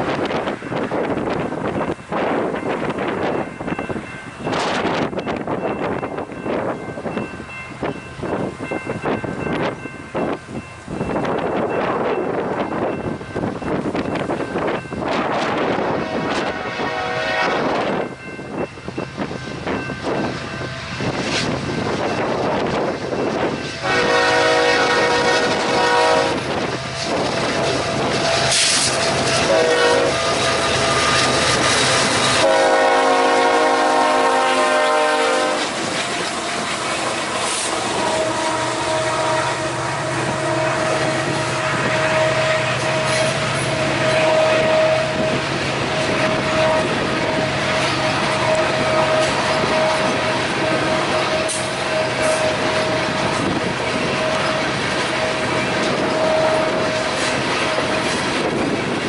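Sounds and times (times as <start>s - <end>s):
locomotive horn blast: 15.2s - 18.0s, 23.8s - 58.5s
train wheels clattering over rail joints: 26.5s - 32.7s.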